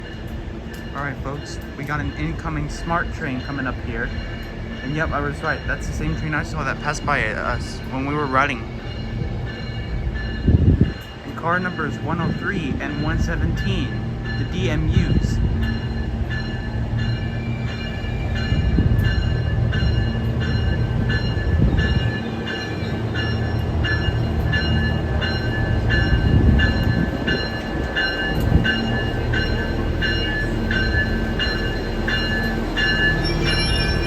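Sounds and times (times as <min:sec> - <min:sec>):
train diesel engines rumbling: 0:00.0 - 0:34.0
bell ringing: 0:13.6 - 0:34.0.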